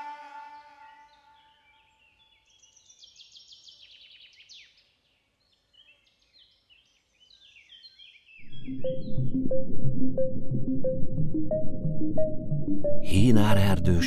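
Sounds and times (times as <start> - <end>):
faint bowed-string music: 0.0 - 1.9
songbird singing: 0.0 - 9.8.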